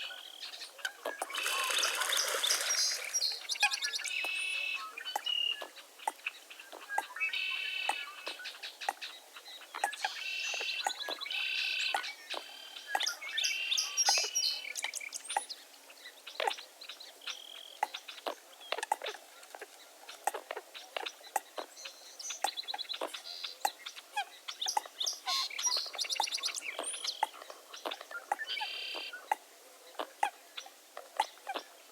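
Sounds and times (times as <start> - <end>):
birds chirping: 0.0 - 15.6, 20.3 - 30.1
buzzy bird calls: 1.0 - 5.8.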